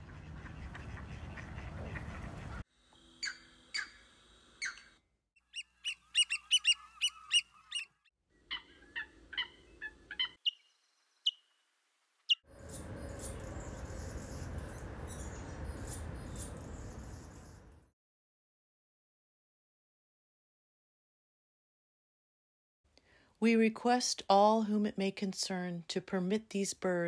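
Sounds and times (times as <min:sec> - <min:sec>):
harsh bird calls: 0:04.6 - 0:11.4
high bird chirping: 0:04.6 - 0:11.5, 0:12.3 - 0:17.6.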